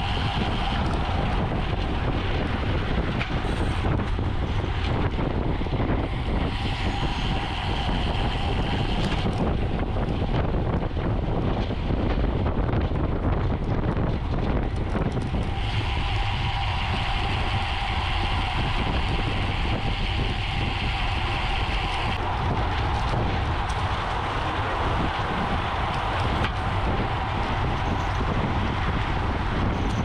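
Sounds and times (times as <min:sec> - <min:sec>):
wind rushing over microphone: 0:00.0 - 0:30.0.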